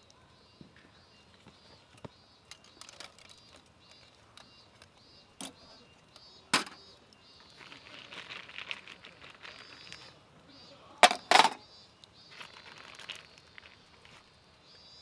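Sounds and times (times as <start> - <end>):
rustling: 7.4 - 10.2, 12.3 - 14.4.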